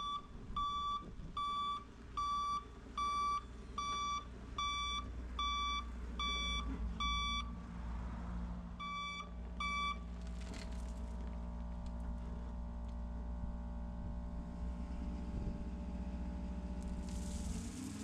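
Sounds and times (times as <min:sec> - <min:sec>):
backup alarm beeping: 0:00.0 - 0:07.5, 0:08.8 - 0:10.0
diesel engine rumbling: 0:00.0 - 0:18.0.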